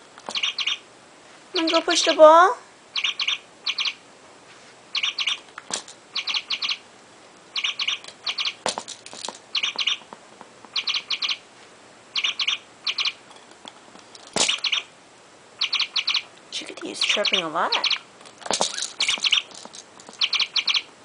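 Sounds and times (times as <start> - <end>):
toy bird chirping: 0.3 - 0.8, 1.6 - 2.2, 2.9 - 4.0, 4.9 - 6.8, 7.5 - 8.6, 9.5 - 10.1, 10.7 - 11.4, 12.1 - 13.2, 14.4 - 14.9, 15.6 - 20.9.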